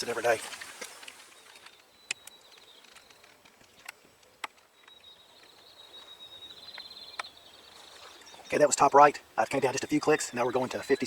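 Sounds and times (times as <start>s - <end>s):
faint high steady tone: 9.8s - 11.0s.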